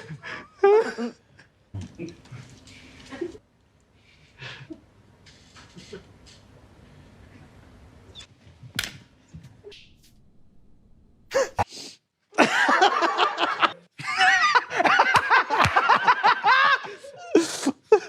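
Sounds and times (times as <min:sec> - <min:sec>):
people laughing hard: 0:12.4 - 0:18.0.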